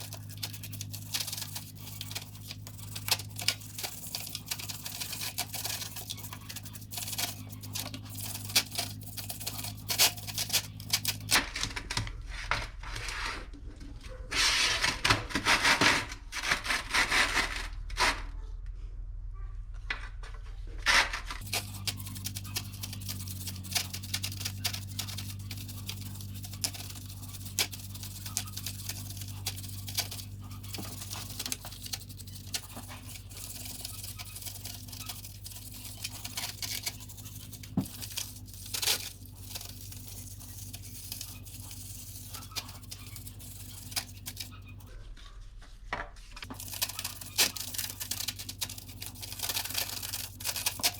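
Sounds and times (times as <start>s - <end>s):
brush scrubbing a chain: 0.0s - 11.3s, 20.8s - 44.8s, 46.4s - 50.9s.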